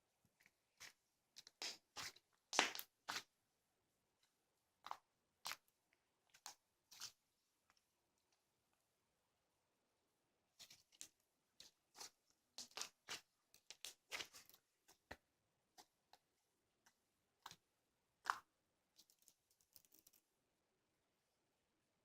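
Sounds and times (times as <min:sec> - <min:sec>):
small clicks and rustles: 0:19.0 - 0:20.3.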